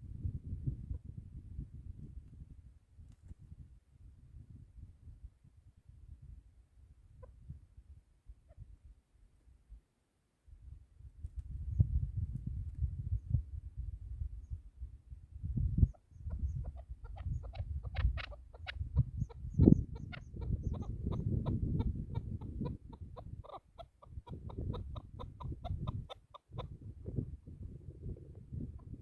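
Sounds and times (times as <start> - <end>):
partridge calling: 15.9 - 26.8.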